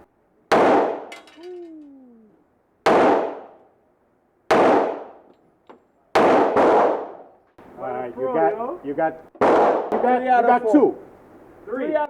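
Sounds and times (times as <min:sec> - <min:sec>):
gunshots: 0:00.5 - 0:01.3, 0:02.8 - 0:03.6, 0:04.5 - 0:05.3, 0:06.1 - 0:07.3, 0:09.3 - 0:10.2.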